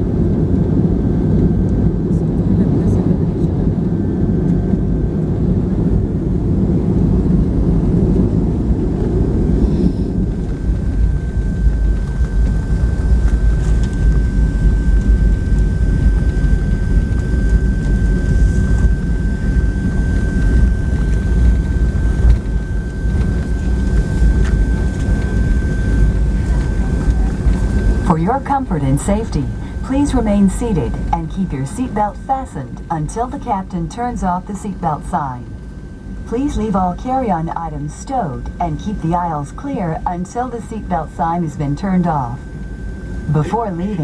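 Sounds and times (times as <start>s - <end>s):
aircraft cabin rumble: 0.0s - 44.0s
thin high whine: 27.7s - 44.0s.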